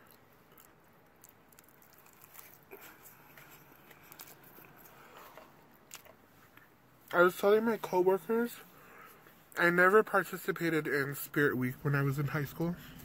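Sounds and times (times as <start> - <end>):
chewing food: 0.0 - 6.7.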